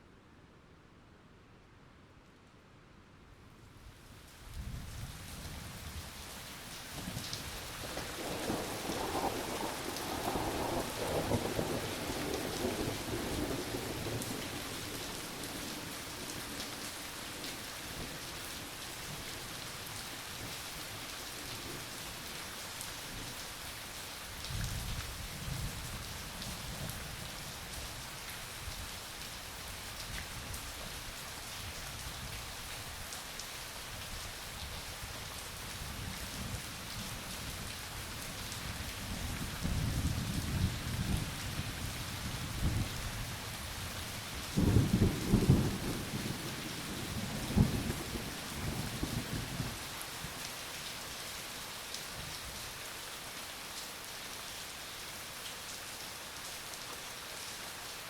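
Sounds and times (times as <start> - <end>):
heavy rain hissing: 38.9 - 53.6
thunder rumbling and cracking: 44.6 - 49.4.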